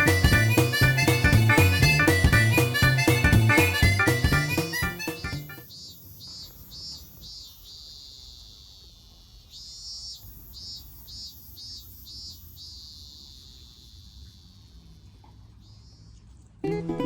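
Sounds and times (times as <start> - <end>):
insect chirping: 5.6 - 16.1.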